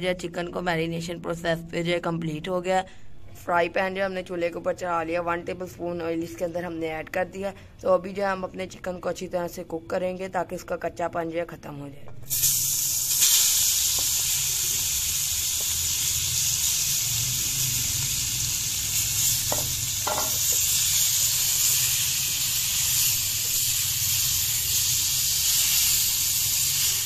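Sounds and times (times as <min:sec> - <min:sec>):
chicken sizzling in frying pan: 0:12.3 - 0:27.0.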